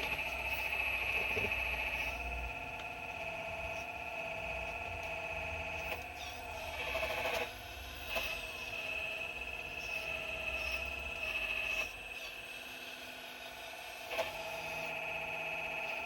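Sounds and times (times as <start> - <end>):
excavator hydraulic whine: 0.0 - 12.5.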